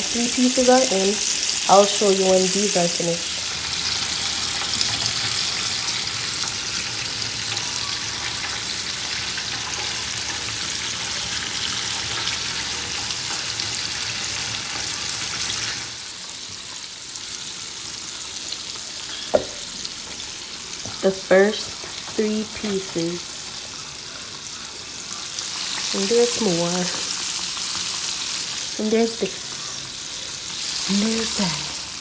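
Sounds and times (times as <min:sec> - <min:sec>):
chicken deep-frying in oil: 0:00.0 - 0:32.0
knock: 0:19.3 - 0:19.6.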